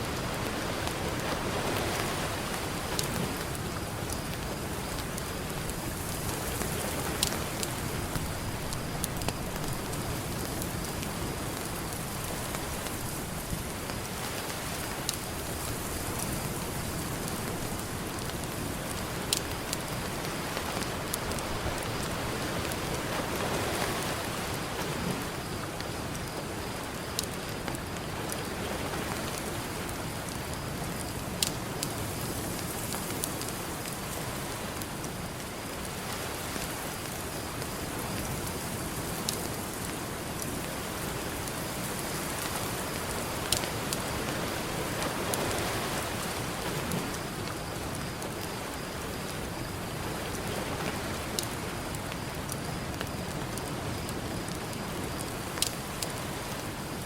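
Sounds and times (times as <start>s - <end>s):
campfire crackling: 0.0s - 57.0s
fire popping: 0.2s - 22.8s, 51.0s - 57.0s.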